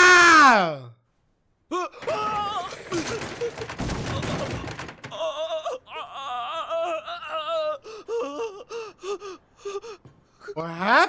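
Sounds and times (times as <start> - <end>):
person wailing: 0.0 - 0.8.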